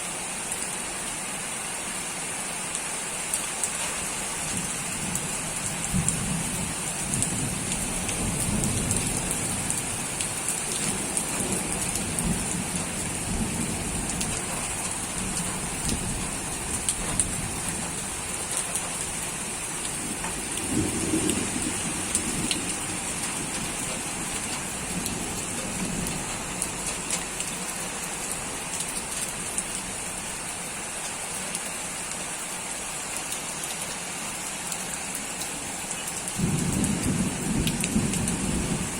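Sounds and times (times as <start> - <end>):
steady rain: 0.0 - 38.9
distant thunder rumbling: 20.0 - 26.9, 36.4 - 38.9.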